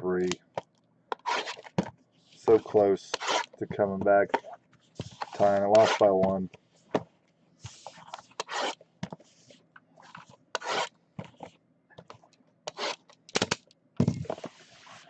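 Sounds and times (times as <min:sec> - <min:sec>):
card packaging tearing: 0:01.2 - 0:01.7.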